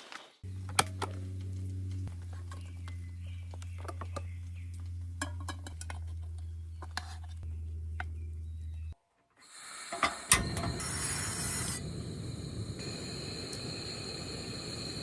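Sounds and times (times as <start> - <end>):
steady low hum: 0.4 - 9.0, 10.4 - 15.0
dishes and cutlery clinking: 5.1 - 7.2.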